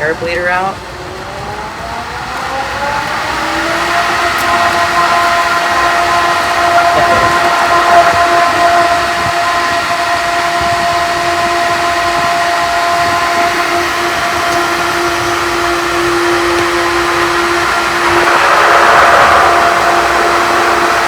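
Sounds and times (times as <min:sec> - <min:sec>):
pool pump motor humming: 0:00.0 - 0:21.0
air hissing from filter: 0:02.3 - 0:21.0.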